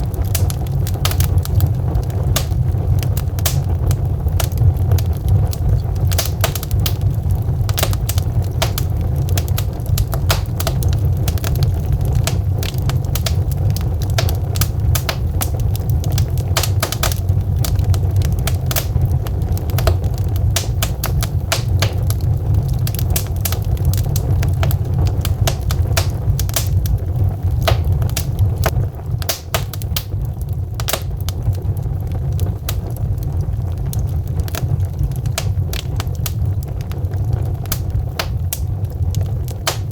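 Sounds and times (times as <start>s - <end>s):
burning logs crackling: 0.0s - 39.9s.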